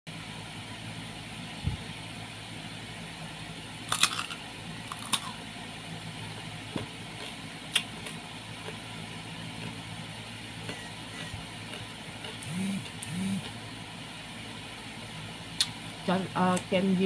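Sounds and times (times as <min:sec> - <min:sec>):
low steady hum: 0:00.1 - 0:17.0
crunchy bite into fruit: 0:03.9 - 0:05.4.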